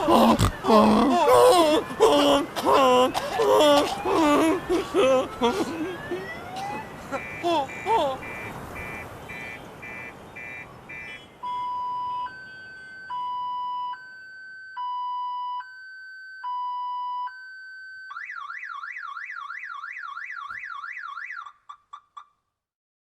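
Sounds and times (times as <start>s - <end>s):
car alarm: 6.0s - 22.1s.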